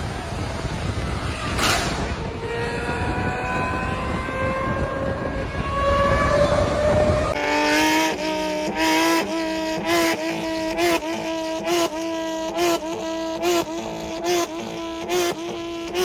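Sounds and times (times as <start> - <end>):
engine running with revving blips: 0.0 - 16.0
car engine accelerating: 5.4 - 16.0.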